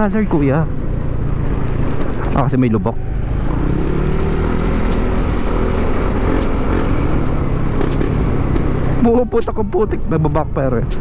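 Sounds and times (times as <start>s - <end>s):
scooter engine running: 3.1s - 9.3s.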